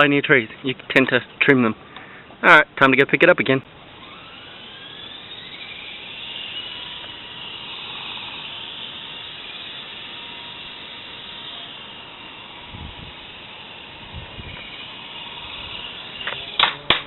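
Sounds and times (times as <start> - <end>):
rc helicopter motor whine: 3.8 - 17.0
rotor hiss: 4.0 - 17.0.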